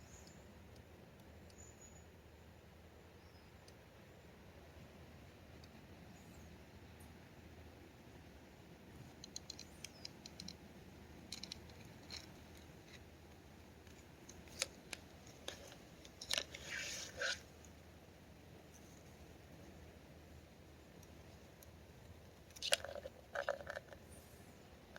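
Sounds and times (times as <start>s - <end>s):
light clicks and scratchy ticks: 9.0s - 10.6s, 11.2s - 17.8s, 18.7s - 19.2s
scratching and crinkling: 11.2s - 17.8s, 22.4s - 24.2s.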